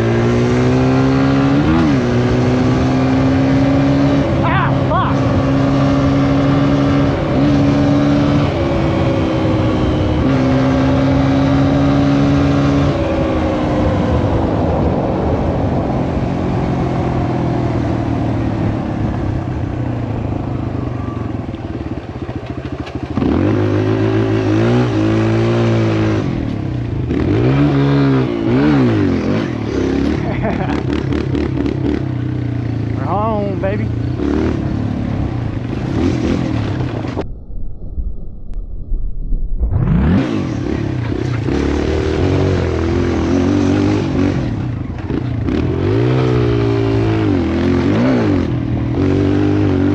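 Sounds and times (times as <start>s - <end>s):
dirt bike engine running: 0.0s - 37.3s.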